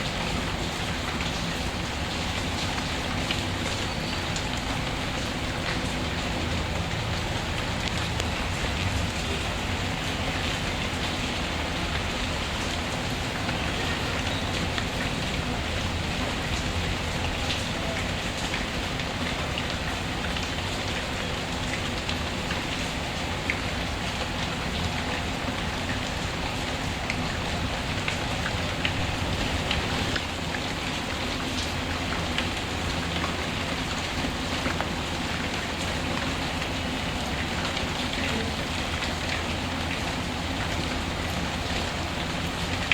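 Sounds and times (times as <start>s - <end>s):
steady rain falling: 0.0s - 42.9s
wood fire crackling: 28.2s - 31.4s.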